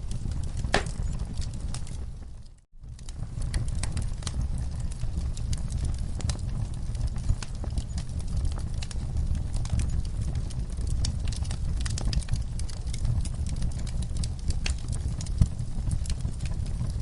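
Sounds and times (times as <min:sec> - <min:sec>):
sharp pops of fire: 0:00.0 - 0:02.0
wood fire crackling: 0:00.0 - 0:17.0.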